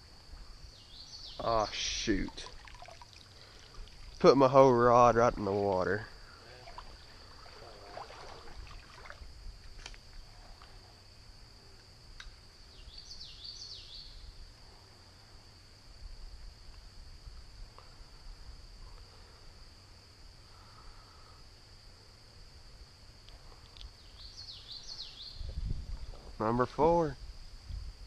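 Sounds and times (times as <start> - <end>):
insects droning: 0.0 - 28.0
bird chirps: 12.7 - 14.3, 24.0 - 25.5.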